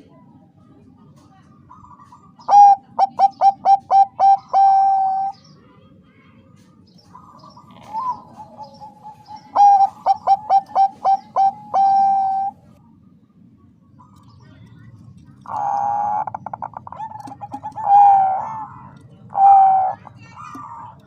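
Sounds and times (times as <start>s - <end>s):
dove cooing: 1.7s - 5.4s, 7.1s - 12.8s, 15.2s - 21.0s.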